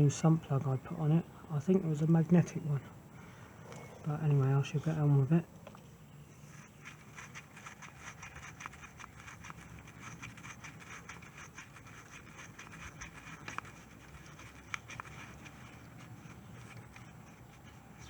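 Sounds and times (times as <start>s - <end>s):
hand tools clicking and scraping: 6.3s - 18.0s.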